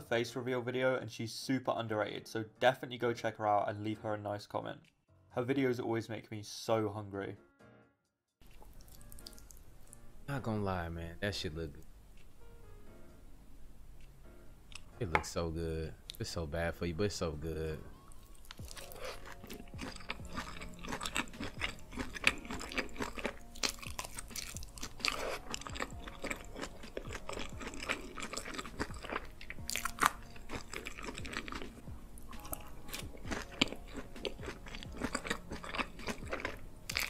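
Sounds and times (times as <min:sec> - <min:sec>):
close chewing crunches: 0:08.4 - 0:10.0, 0:18.3 - 0:37.0.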